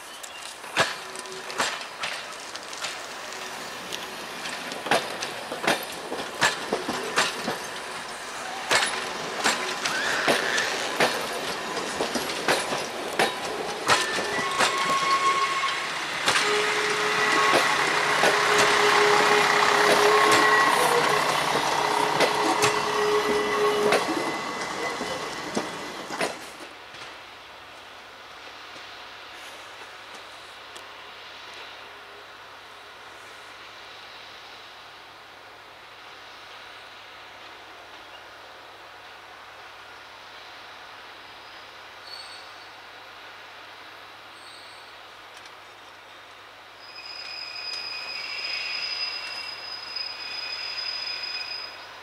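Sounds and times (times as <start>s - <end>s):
wheels clicking over rail joints: 0.1s - 27.2s.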